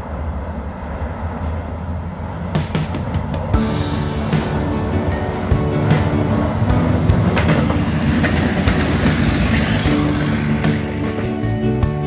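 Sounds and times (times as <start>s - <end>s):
railcar engine drone: 0.0s - 12.0s
wheels rumbling on rails: 0.0s - 12.0s
wheels clicking over rail joints: 3.0s - 12.0s.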